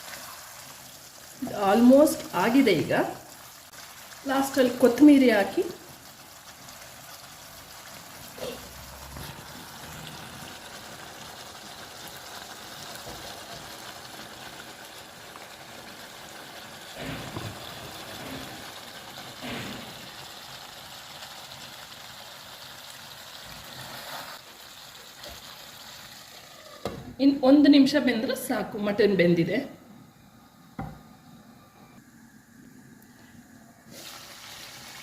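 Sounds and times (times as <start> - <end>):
meat sizzling in a pan: 0.0 - 27.0, 33.9 - 35.0.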